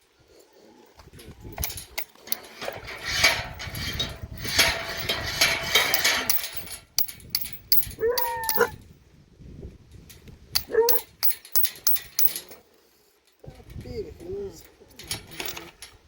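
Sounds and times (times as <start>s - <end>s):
metal knocking on iron gate: 2.4s - 8.7s.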